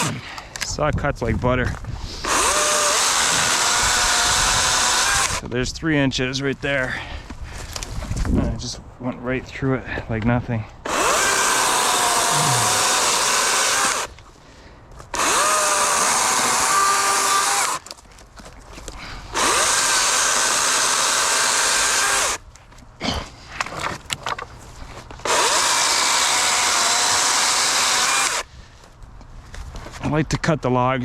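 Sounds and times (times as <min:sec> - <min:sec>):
chainsaw cutting logs: 0:00.0 - 0:00.5, 0:02.1 - 0:05.5, 0:10.9 - 0:14.3, 0:15.0 - 0:18.0, 0:19.0 - 0:22.4, 0:23.5 - 0:28.5.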